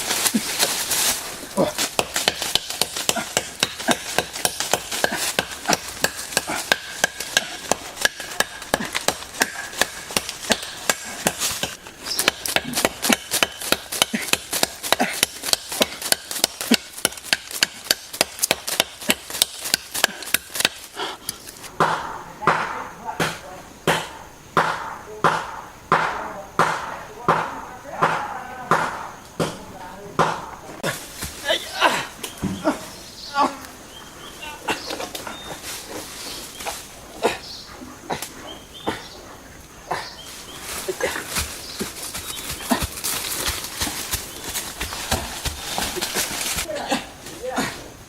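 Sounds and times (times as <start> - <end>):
chopping strikes: 1.8 - 20.8, 21.7 - 29.6, 30.2 - 30.6.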